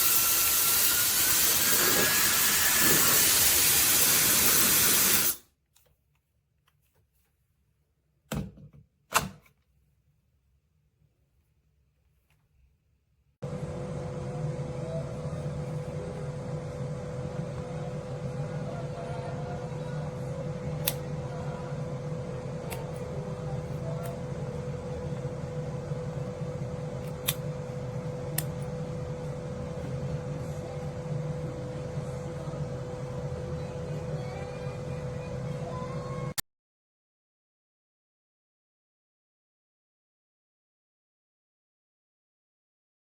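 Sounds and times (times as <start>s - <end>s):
hair dryer running: 0.0s - 5.4s, 13.4s - 36.4s.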